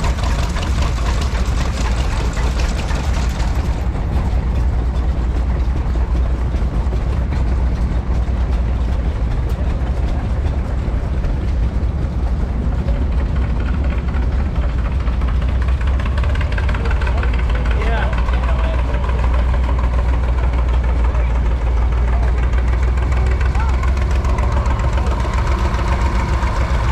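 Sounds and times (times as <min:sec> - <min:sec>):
stationary engine rumbling: 0:00.0 - 0:26.9.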